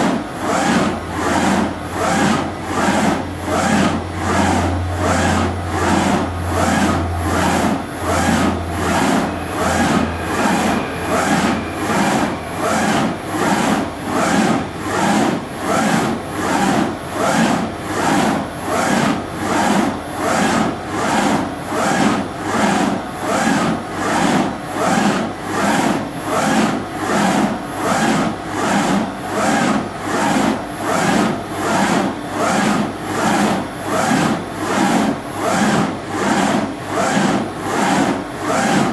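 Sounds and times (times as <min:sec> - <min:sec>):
surface grinder running: 0:00.5 - 0:17.4
low hum: 0:04.7 - 0:15.0.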